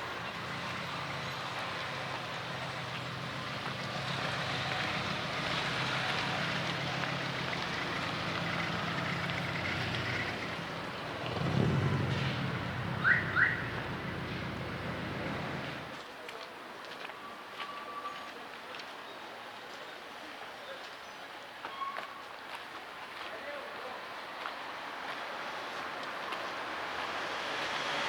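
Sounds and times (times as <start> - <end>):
vehicle passing close: 0.0 - 15.9
hum of traffic: 0.0 - 28.0.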